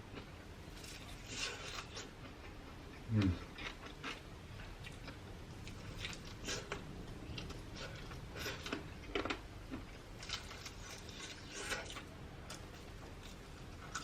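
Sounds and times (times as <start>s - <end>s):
person chewing and biting food: 0.8s - 2.1s, 3.2s - 14.0s.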